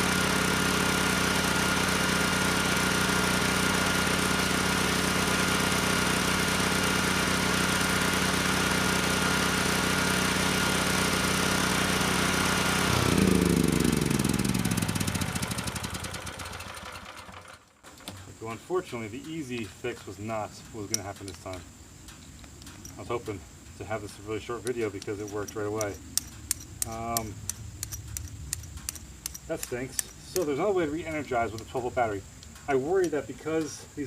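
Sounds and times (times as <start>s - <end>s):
generator engine running: 0.0s - 18.5s
generator whine: 0.0s - 34.0s.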